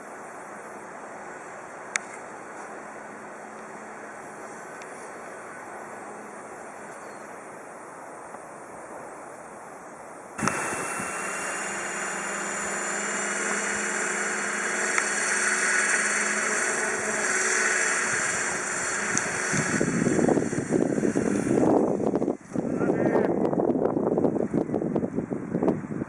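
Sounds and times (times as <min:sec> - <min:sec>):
low hiss: 0:00.0 - 0:22.8
helicopter motor whine: 0:10.4 - 0:22.4.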